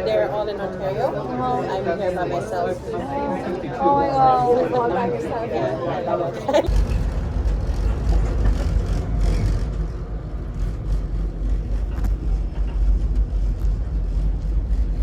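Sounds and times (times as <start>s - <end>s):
passenger train rumbling: 6.5s - 15.0s.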